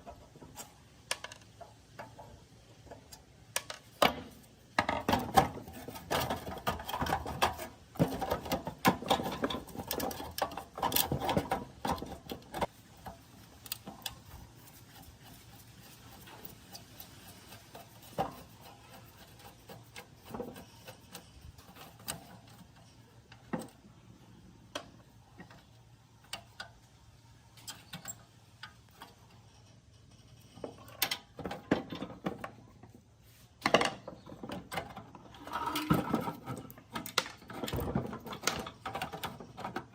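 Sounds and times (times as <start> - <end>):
metal clicks and knocks: 0.0 - 15.0, 33.6 - 39.9
scraping and rubbing on metal: 3.8 - 24.4, 28.8 - 32.3, 33.2 - 39.9.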